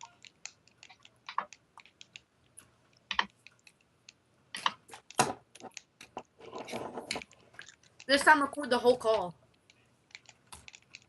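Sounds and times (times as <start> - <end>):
computer keyboard keys clicking: 0.0 - 6.1, 9.6 - 11.0.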